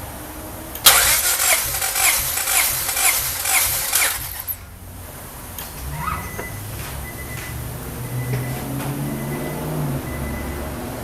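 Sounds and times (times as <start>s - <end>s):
starter motor cranking engine: 0.8s - 4.8s.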